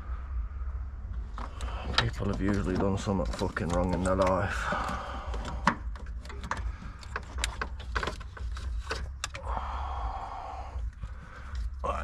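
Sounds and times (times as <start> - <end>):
steady low hum: 0.0 - 12.0
metal tools clicking and knocking: 1.4 - 9.4.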